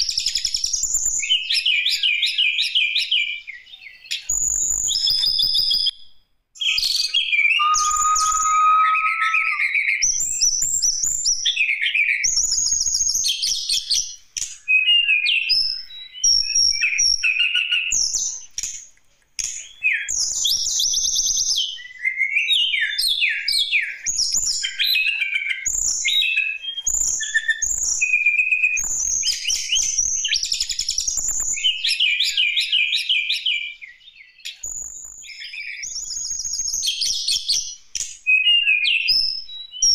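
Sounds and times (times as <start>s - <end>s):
bird singing whistles and trills: 6.6s - 9.8s, 19.7s - 39.9s.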